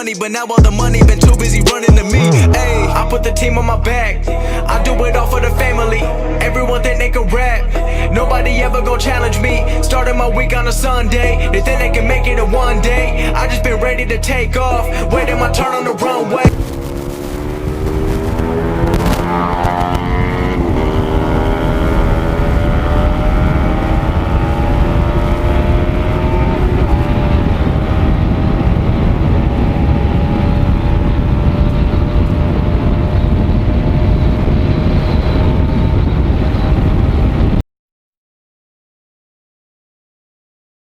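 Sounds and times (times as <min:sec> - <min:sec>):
motorcycle engine at high revs: 0:16.5 - 0:34.2
wind rumble on microphone: 0:16.5 - 0:37.6.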